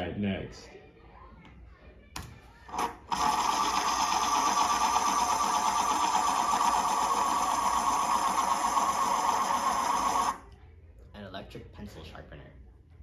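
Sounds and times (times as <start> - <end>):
electric pencil sharpener whirring: 2.7 - 10.4.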